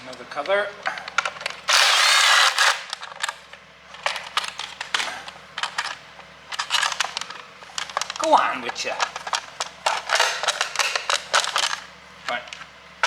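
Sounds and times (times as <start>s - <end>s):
power tool burst: 1.7s - 3.0s.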